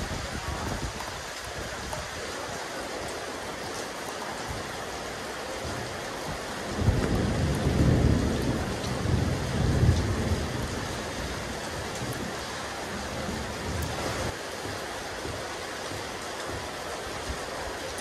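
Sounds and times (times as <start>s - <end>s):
rain on a rooftop: 0.0s - 18.0s
low thunder rumble: 5.6s - 14.4s.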